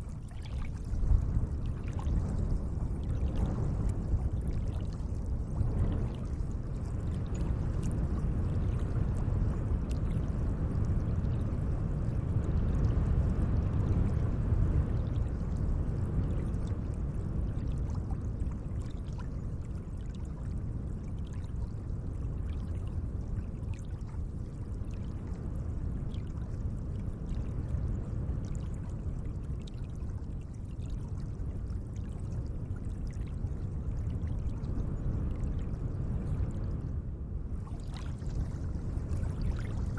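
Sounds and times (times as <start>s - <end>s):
small water splashes: 0.0s - 3.6s, 37.6s - 39.9s
lake water washing: 37.6s - 39.9s.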